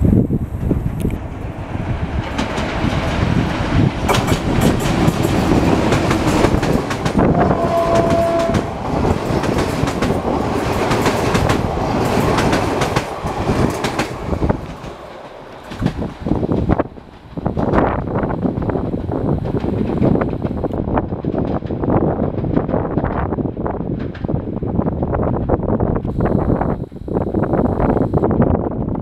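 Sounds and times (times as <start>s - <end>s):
train rumbling past: 0.0s - 25.6s
wheels clicking over rail joints: 2.1s - 7.3s, 8.0s - 23.2s
high steady tone: 5.2s - 10.0s.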